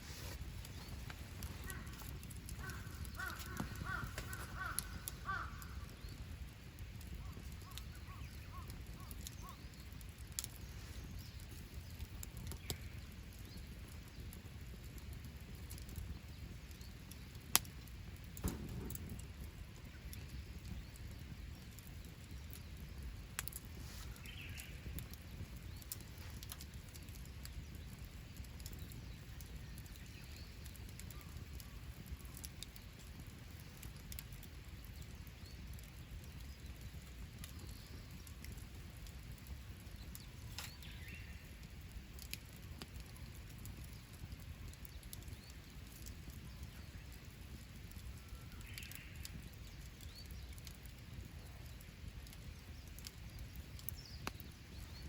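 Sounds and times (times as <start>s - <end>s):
wood fire crackling and popping: 0.0s - 55.0s
short bird calls: 1.6s - 6.0s.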